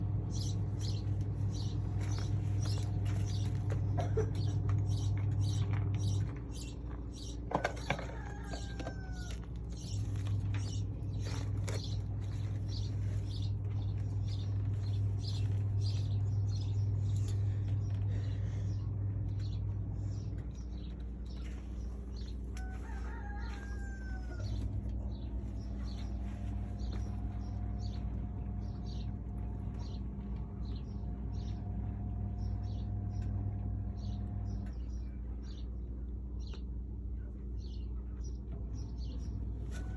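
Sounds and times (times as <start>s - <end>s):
low hum: 0.0s - 39.9s
rooster crowing: 7.6s - 9.6s, 22.2s - 24.8s.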